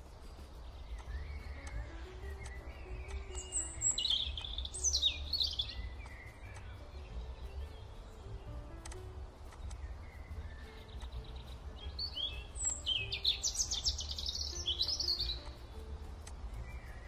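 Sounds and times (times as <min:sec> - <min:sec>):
steady low hum: 0:00.0 - 0:13.2
bird chirping: 0:00.0 - 0:17.0
faint background music: 0:00.0 - 0:17.0.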